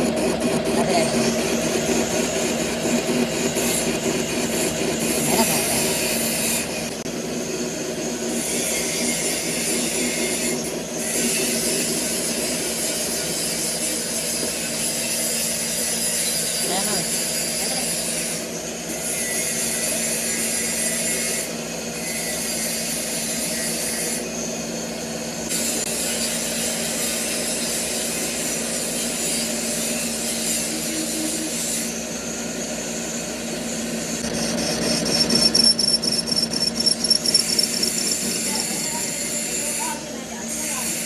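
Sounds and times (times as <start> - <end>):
metalworking machinery humming: 30.2 - 41.0
tool rasping: 34.1 - 40.0.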